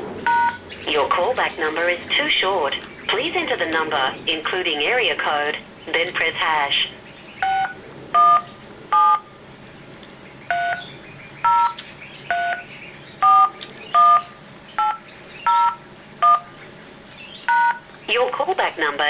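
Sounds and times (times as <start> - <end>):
telephone keypad touch-tones: 0.3 - 0.6, 7.4 - 9.3, 10.5 - 10.8, 11.5 - 12.6, 13.2 - 16.5, 17.5 - 17.8.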